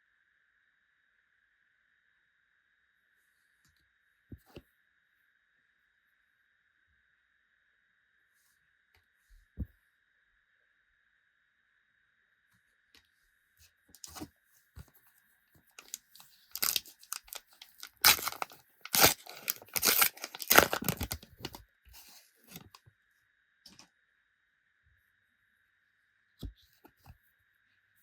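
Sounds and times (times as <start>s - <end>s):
foil packet ripping and rustling: 15.8s - 21.6s.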